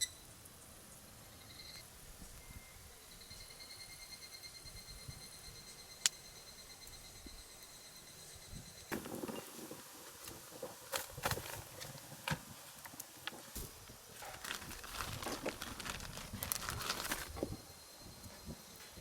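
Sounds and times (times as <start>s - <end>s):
rustling: 8.9s - 17.6s.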